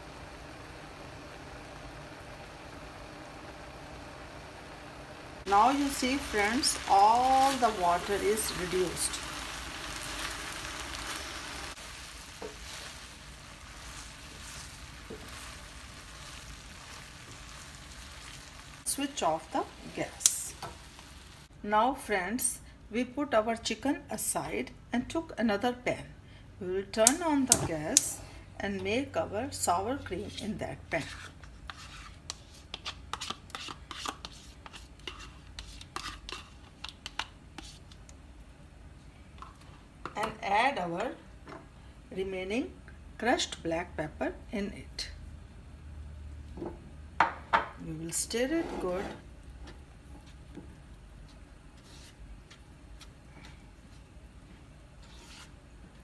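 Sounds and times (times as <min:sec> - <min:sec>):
chicken sizzling in a pot: 0:00.0 - 0:21.5
spoon scraping a pan: 0:30.0 - 0:38.0, 0:48.3 - 0:49.3, 0:55.0 - 0:55.6.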